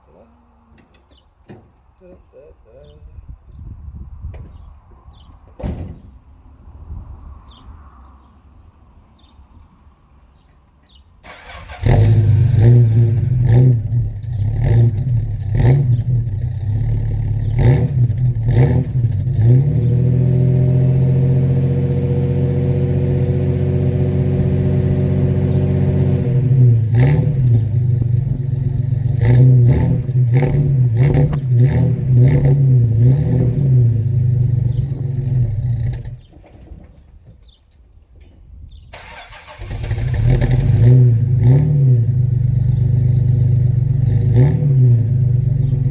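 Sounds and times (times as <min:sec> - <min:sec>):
car engine starting and surging: 0:11.2 - 0:36.4, 0:38.9 - 0:45.9.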